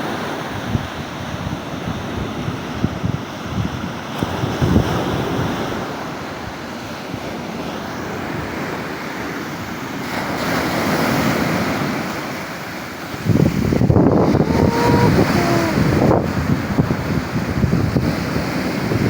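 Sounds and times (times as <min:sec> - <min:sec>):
wind buffeting microphone: 0:00.5 - 0:06.1, 0:13.0 - 0:19.0
waves breaking: 0:04.2 - 0:19.0.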